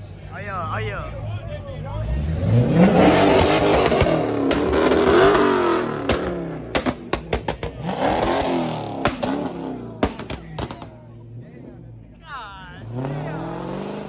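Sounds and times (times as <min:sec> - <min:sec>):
car engine revving: 0:00.0 - 0:14.0
sharp cracks: 0:02.4 - 0:11.0.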